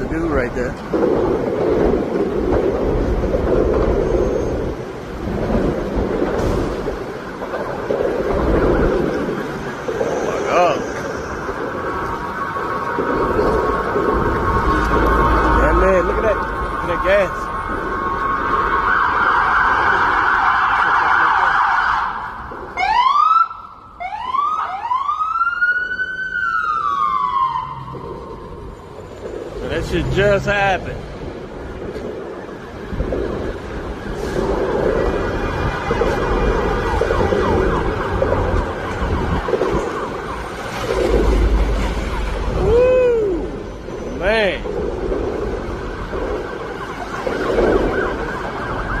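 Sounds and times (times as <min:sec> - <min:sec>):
emergency vehicle siren: 0:00.0 - 0:49.0
traffic rumble: 0:00.0 - 0:49.0.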